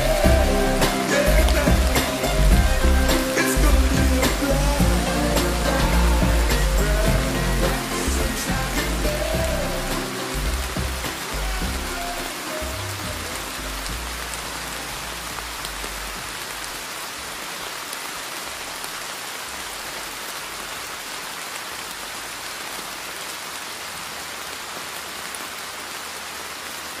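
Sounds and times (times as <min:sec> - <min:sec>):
low rumble: 0:00.0 - 0:14.2
steady rain falling: 0:00.0 - 0:27.0.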